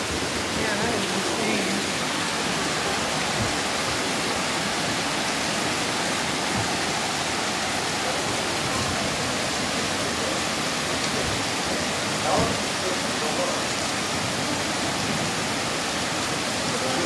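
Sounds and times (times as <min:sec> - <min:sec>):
flowing floodwater: 0:00.0 - 0:17.0
heavy rain: 0:00.0 - 0:17.0.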